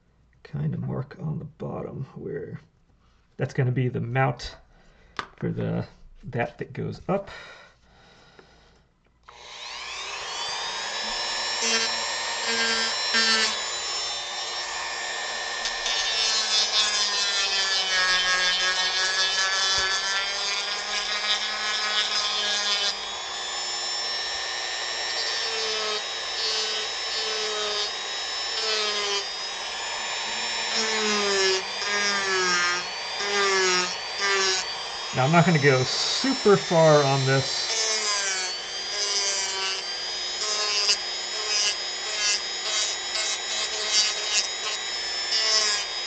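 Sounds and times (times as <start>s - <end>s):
rotary tool grinding wood: 9.2s - 46.0s.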